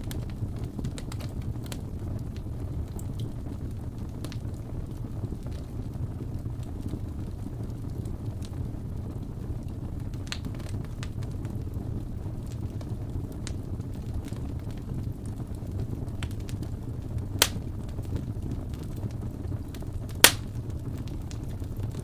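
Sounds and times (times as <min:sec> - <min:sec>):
fire crackling and popping: 0:00.0 - 0:22.0
wood fire roaring: 0:00.0 - 0:22.0.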